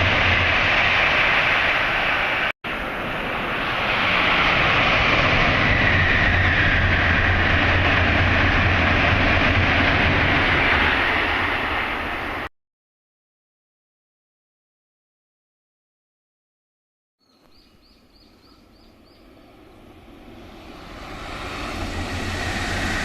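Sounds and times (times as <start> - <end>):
high-speed train passing: 0.0 - 12.5, 18.2 - 23.0.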